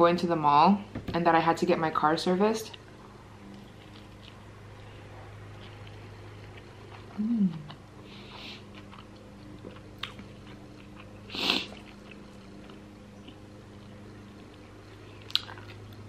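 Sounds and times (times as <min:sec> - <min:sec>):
low hum: 0:00.0 - 0:16.0
chewing with mouth clicks: 0:03.5 - 0:16.0.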